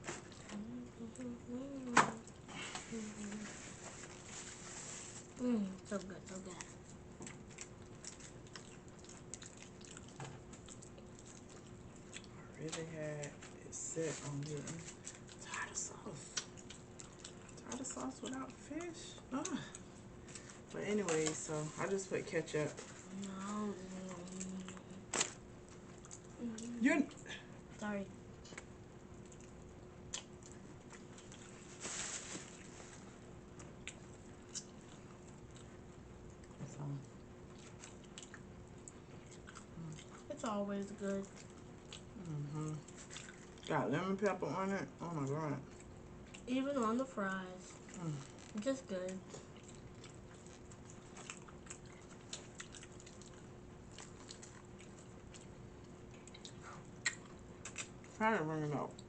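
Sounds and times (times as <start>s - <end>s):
person chewing food: 5.2s - 13.6s, 14.3s - 20.7s, 22.8s - 26.8s, 28.5s - 40.3s, 41.2s - 43.7s, 45.6s - 46.5s, 47.6s - 58.2s
wet mouth clicks: 56.3s - 58.0s.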